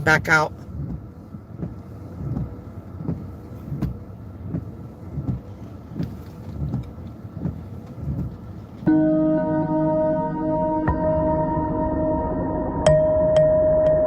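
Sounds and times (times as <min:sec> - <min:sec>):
vehicle cabin hum: 0:00.0 - 0:14.0.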